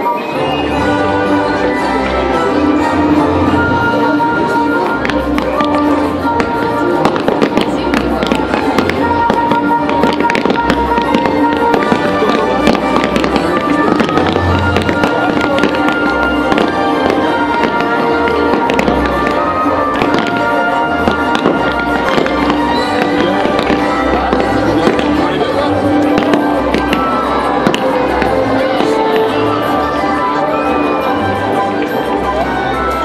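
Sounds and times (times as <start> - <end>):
fireworks bursting and crackling: 0.0 - 33.0
music from loudspeakers: 0.0 - 33.0
deep fireworks booms: 4.8 - 30.1.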